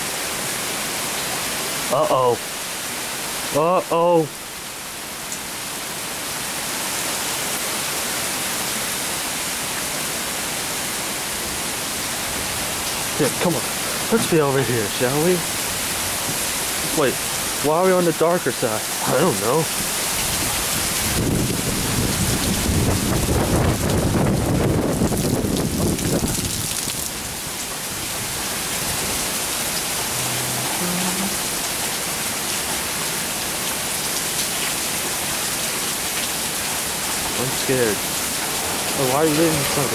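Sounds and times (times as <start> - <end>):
heavy rain pouring: 0.0 - 39.9
low rumble of thunder: 20.4 - 26.6.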